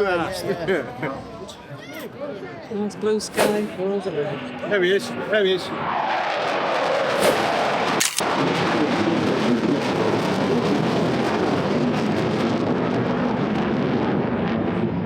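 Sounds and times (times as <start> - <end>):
fighter jet roaring overhead: 3.4 - 15.0.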